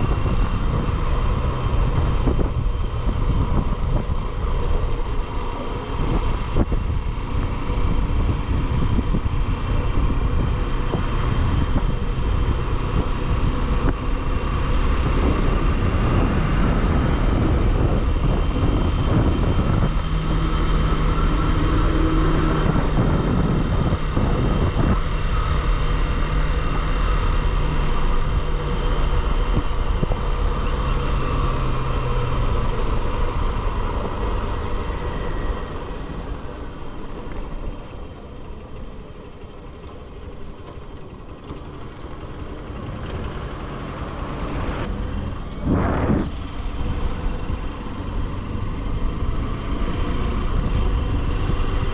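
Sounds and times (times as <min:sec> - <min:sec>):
wind rush: 0:00.0 - 0:30.4, 0:41.2 - 0:51.9
motorcycle engine: 0:00.0 - 0:51.9.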